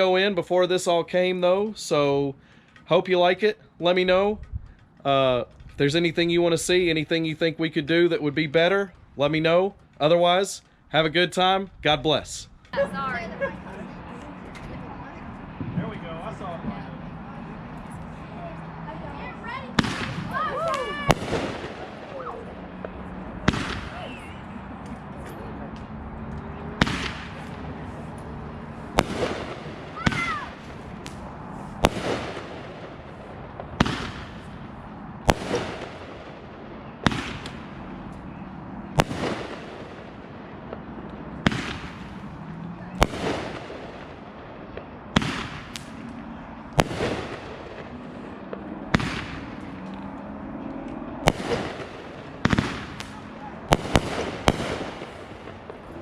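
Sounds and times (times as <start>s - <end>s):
fireworks banging with echo: 12.6s - 56.0s
firework whistle: 23.5s - 24.6s.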